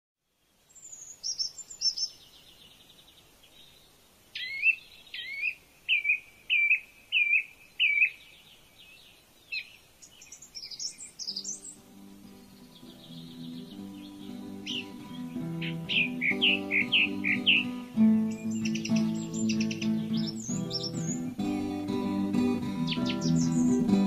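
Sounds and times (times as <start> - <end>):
songbird singing: 0.2 - 24.0
background music with low notes: 11.6 - 24.0.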